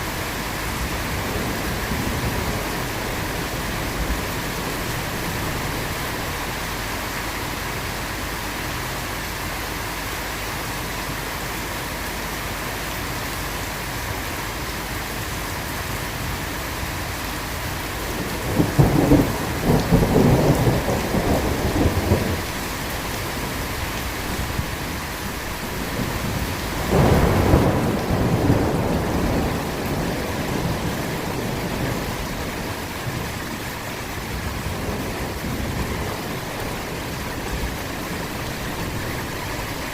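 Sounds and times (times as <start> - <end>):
heavy rain: 0.0 - 39.9
thunder rolling: 0.7 - 7.6, 17.7 - 39.9.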